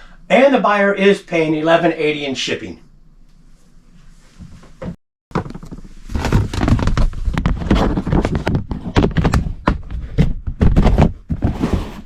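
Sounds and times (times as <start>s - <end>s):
items knocking and thumping: 4.7s - 12.0s
rummaging rustles: 5.4s - 10.0s.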